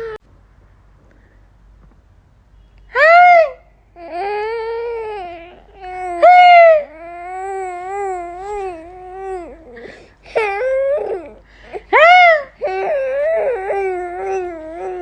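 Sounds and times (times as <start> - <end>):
baby crying: 4.0 - 15.0.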